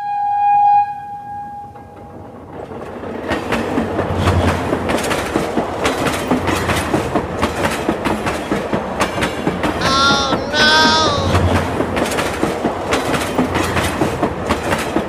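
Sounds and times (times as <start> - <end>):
mini train wheels clicking on track: 2.1 - 9.6, 12.0 - 15.0.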